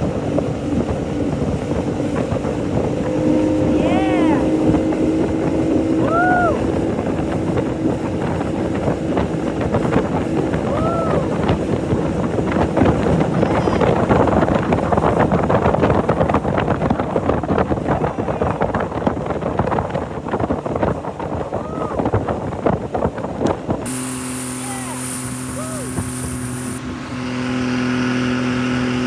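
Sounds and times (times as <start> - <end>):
motorboat engine hum: 0.0 - 29.0
rushing water: 0.0 - 29.0
wind buffeting microphone: 0.0 - 29.0
rising and falling tone: 23.9 - 29.0.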